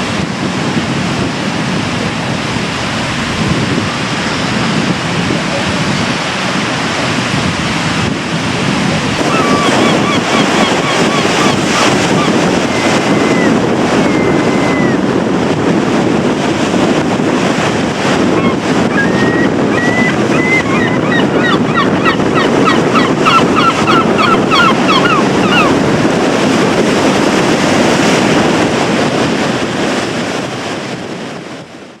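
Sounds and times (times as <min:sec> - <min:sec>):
wind buffeting microphone: 0:00.0 - 0:32.0
surf breaking: 0:00.1 - 0:31.3
gulls calling: 0:09.2 - 0:15.2, 0:18.0 - 0:26.2.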